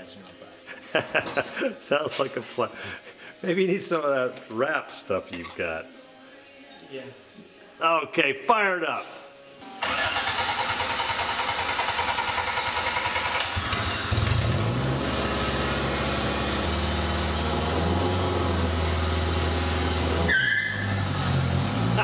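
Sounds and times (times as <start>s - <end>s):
engine cranking on starter: 9.8s - 18.7s
engine revving and idling: 9.8s - 22.0s.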